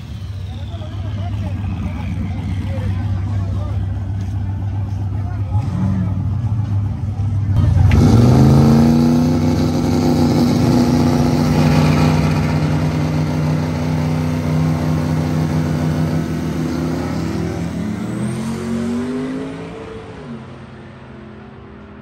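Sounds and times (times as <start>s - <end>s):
truck engine running hard: 0.0s - 19.7s.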